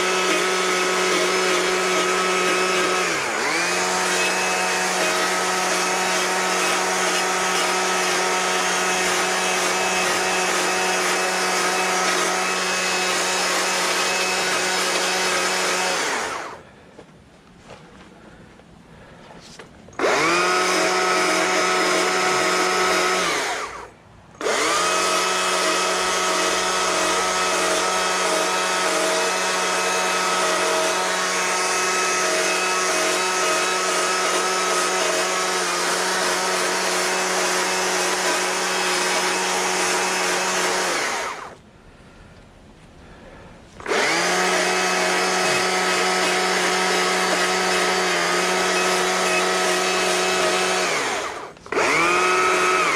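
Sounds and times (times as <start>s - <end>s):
power carving tool motor: 0.0s - 16.6s, 20.0s - 41.6s, 43.8s - 52.9s.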